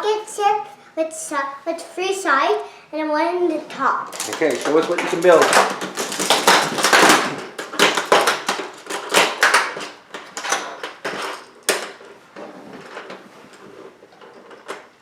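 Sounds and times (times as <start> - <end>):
plastic pieces clattering and clicking: 4.1 - 15.0.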